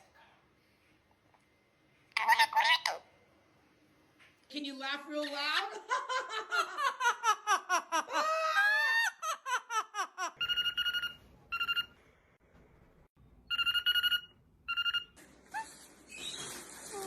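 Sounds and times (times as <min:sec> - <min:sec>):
parrot laughing: 0:06.1 - 0:11.7.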